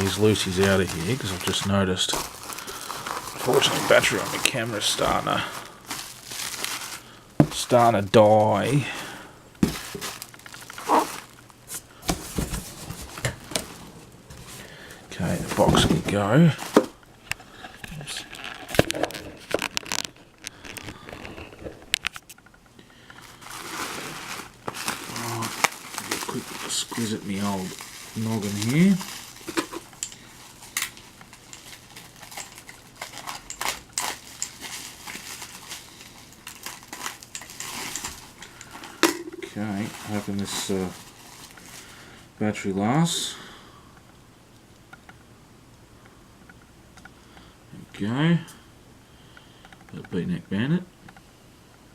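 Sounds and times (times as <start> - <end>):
cardboard box rustle: 0.0 - 8.8, 9.6 - 11.4, 12.0 - 14.6, 23.3 - 29.9
packaging rustling: 0.0 - 22.4, 23.0 - 42.2.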